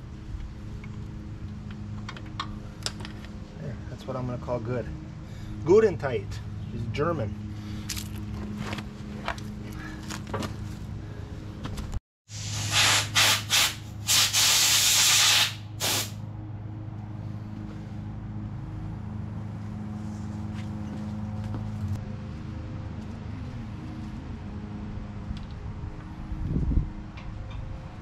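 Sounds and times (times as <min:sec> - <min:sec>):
steady low hum: 0:00.0 - 0:12.0
hissing spray bursts: 0:12.3 - 0:16.2.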